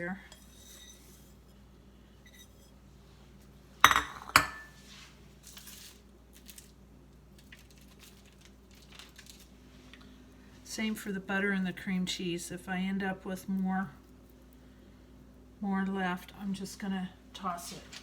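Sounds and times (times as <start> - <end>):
faint scraping and rustling: 0.1 - 3.6, 4.7 - 6.8
utensil clinking against dish: 3.9 - 4.7.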